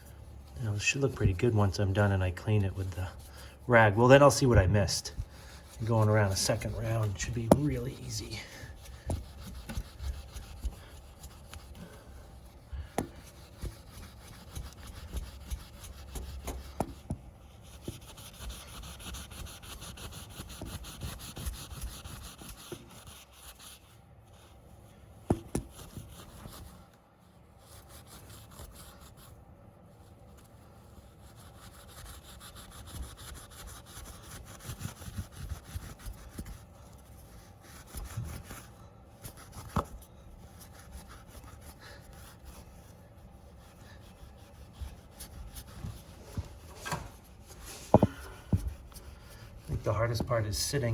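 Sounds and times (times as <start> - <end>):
pad scrubbing metal wheel rim: 0.7 - 23.5.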